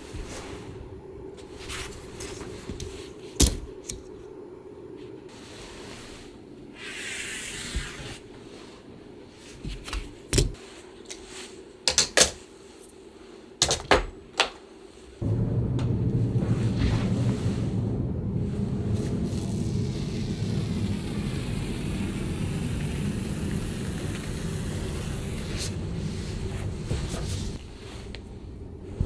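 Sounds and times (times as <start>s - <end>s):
loud steady rushing noise: 15.2s - 29.0s.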